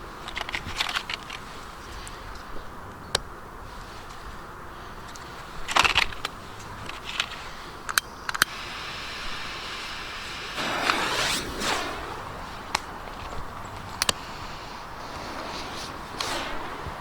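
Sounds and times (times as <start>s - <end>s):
firecracker fuse hissing: 3.7s - 17.0s
sharp clicks: 5.1s - 8.7s, 12.4s - 14.4s
short crackle: 5.1s - 17.0s.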